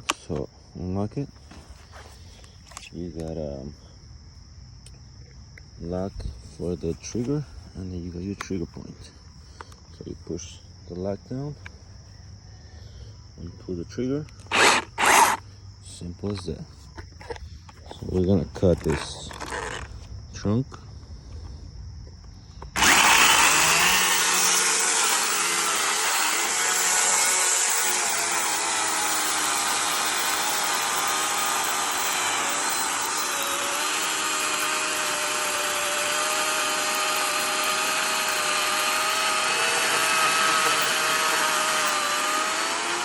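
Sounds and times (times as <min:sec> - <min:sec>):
chainsaw cutting tree trunk: 0:14.5 - 0:15.4, 0:22.7 - 0:43.0.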